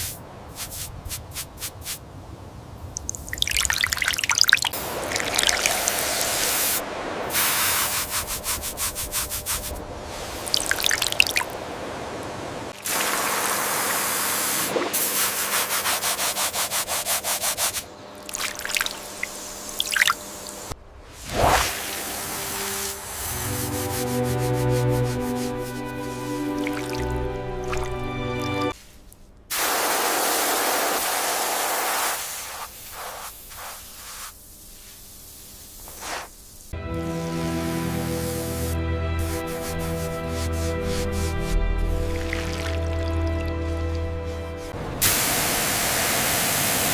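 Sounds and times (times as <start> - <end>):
spray hissing on metal: 0.0 - 2.0, 5.6 - 10.5, 12.9 - 17.9, 21.8 - 26.6, 29.5 - 36.8, 38.0 - 41.6, 44.2 - 46.9.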